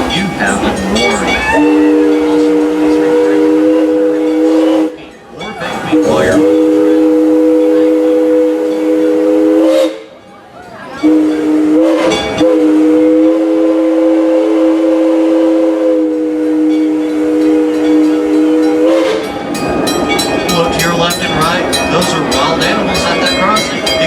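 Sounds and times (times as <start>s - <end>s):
steam locomotive whistle: 0.0s - 10.2s, 11.0s - 19.6s.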